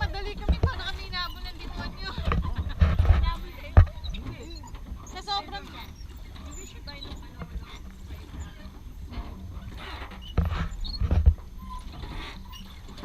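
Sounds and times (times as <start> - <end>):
steady low rumble: 0.0 - 5.6
oars knocking in oarlocks: 0.0 - 7.9, 9.3 - 13.0.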